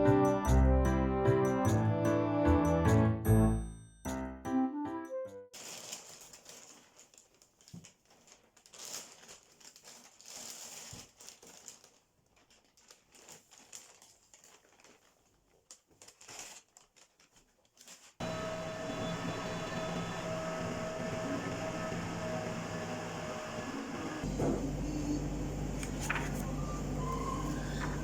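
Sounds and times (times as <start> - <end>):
crinkling and rustling: 5.6 - 18.2, 25.8 - 28.0
mechanical hum: 18.2 - 28.0.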